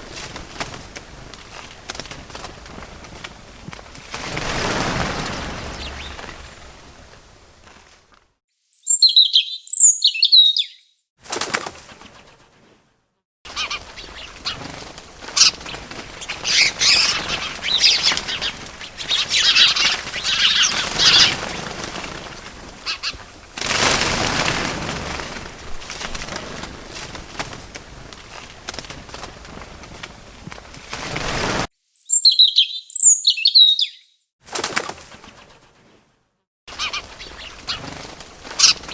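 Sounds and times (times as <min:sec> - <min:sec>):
wings flapping: 0:00.0 - 0:08.4, 0:11.2 - 0:12.9, 0:13.5 - 0:31.7, 0:34.4 - 0:36.1, 0:36.7 - 0:38.9
bird chirps: 0:05.6 - 0:06.6, 0:08.6 - 0:11.0, 0:31.8 - 0:34.3.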